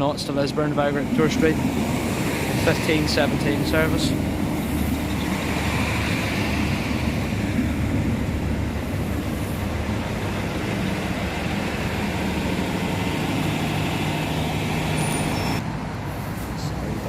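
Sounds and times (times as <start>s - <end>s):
diesel train engine: 0.0s - 17.0s
wheels rumbling on rails: 0.0s - 17.0s.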